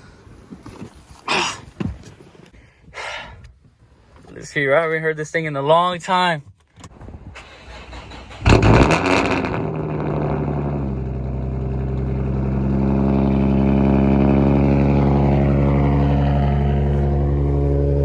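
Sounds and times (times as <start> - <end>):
car engine idling: 7.4 - 18.0
high whine sliding down in pitch: 8.6 - 18.0.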